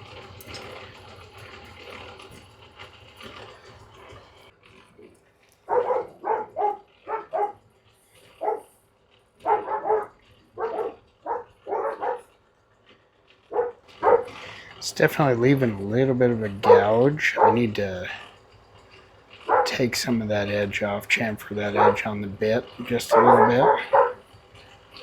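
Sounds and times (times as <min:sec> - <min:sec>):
steady machine noise: 0:00.0 - 0:05.0, 0:05.6 - 0:25.0
dog barking: 0:05.7 - 0:07.6, 0:08.2 - 0:08.7, 0:09.4 - 0:12.4, 0:13.4 - 0:14.4, 0:16.6 - 0:18.2, 0:19.4 - 0:20.0, 0:21.5 - 0:22.2, 0:22.9 - 0:24.3.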